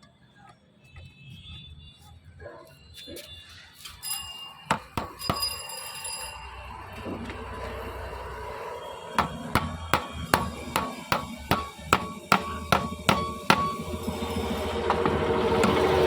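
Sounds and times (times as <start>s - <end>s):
hammer striking metal: 4.7s - 6.0s, 9.0s - 16.0s.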